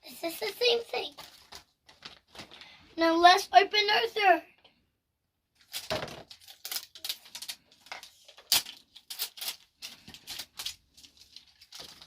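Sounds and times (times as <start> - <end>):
plastic packaging crinkling: 0.9 - 2.7, 5.6 - 12.0.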